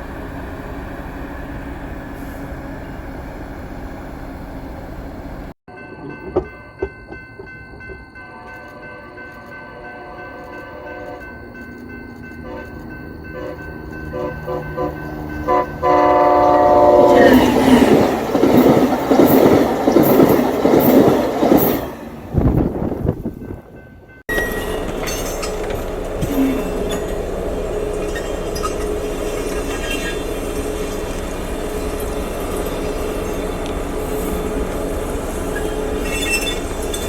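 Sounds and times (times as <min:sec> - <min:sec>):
train wheels on rails: 0:00.0 - 0:37.0
train horn chord: 0:08.2 - 0:11.4, 0:12.4 - 0:17.6.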